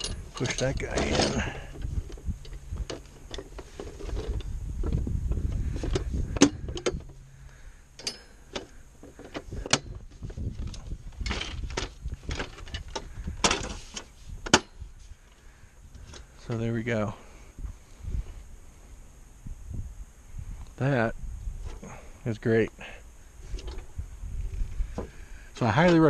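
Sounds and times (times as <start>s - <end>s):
folding bench clicking and rattling: 0.0s - 7.2s, 8.0s - 14.8s.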